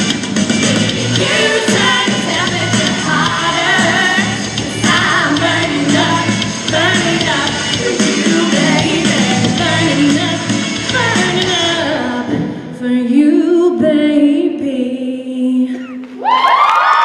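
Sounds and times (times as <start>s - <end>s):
backing track music: 0.0s - 12.6s
group singing: 0.0s - 13.7s
crowd cheering and screaming: 15.8s - 17.0s.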